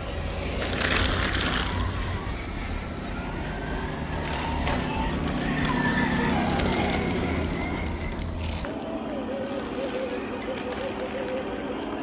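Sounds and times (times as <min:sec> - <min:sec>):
tyres clicking over rough ground: 0:03.4 - 0:12.0.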